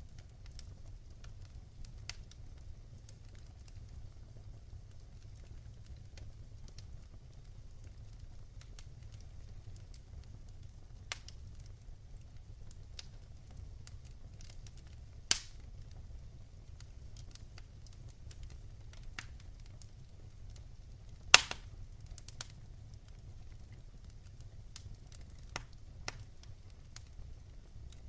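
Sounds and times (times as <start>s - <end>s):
wood fire crackling: 0.0s - 28.0s
loud fire pops: 12.4s - 28.0s.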